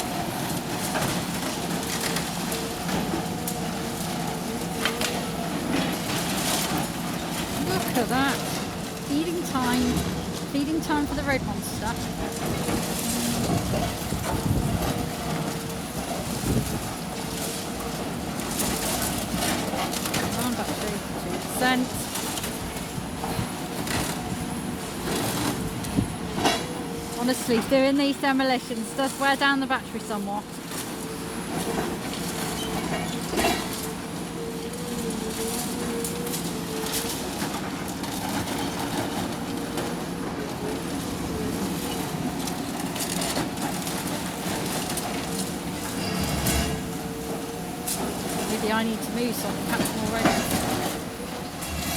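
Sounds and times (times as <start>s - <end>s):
heavy machinery engine running: 0.0s - 51.9s
wind buffeting microphone: 9.2s - 17.2s, 20.4s - 27.1s.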